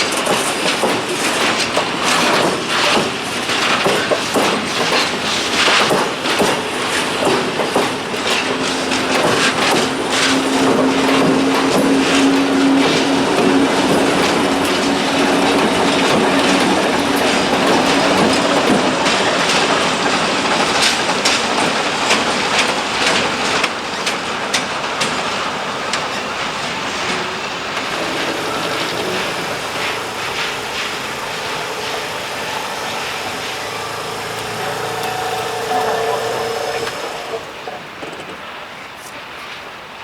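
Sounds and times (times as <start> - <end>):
wheels clicking over rail joints: 0.0 - 39.7
diesel shunter engine: 6.3 - 23.6, 26.8 - 37.8
steady low hum: 27.9 - 37.0.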